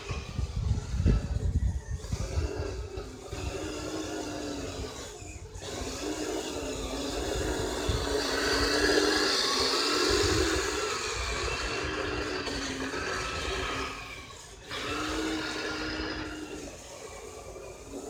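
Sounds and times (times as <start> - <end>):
electric motor and gears whining: 0.0 - 18.0.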